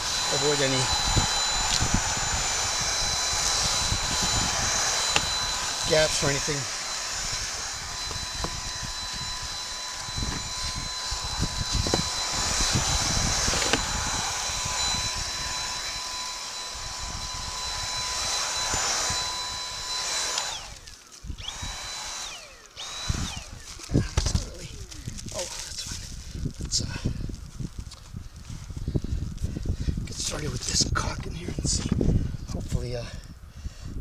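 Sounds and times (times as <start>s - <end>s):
vacuum cleaner whine: 0.0s - 26.0s
vacuum knocks: 11.2s - 15.7s.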